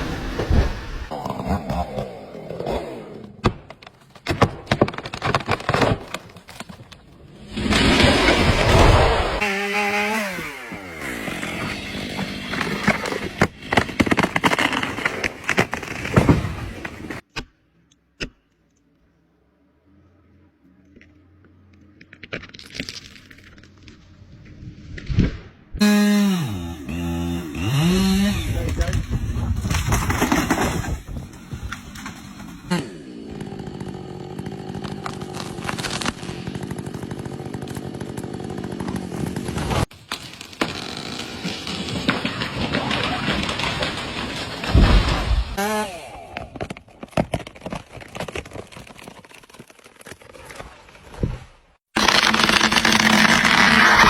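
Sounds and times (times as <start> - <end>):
wood cracking and snapping: 3.4 - 9.4, 11.2 - 17.3, 21.8 - 24.1, 33.4 - 45.6, 46.3 - 54.0
chainsaw running: 9.2 - 13.7, 25.8 - 29.3, 31.4 - 39.9, 52.0 - 54.0
scattered crackles: 20.8 - 25.5.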